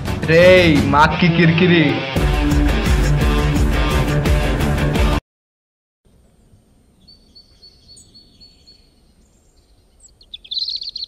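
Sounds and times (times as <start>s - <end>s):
faint outdoor background noise: 6.1s - 11.0s
small bird chirping: 6.4s - 11.0s.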